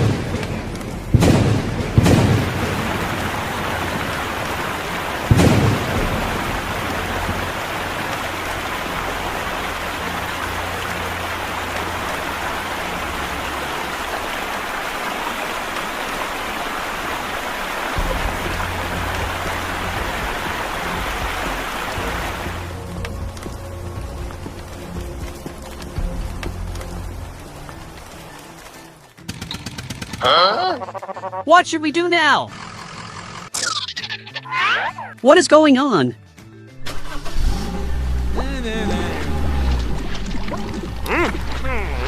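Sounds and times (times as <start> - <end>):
thunder cracks: 0.0 - 9.0
heavy rain: 0.0 - 29.3, 36.8 - 42.0.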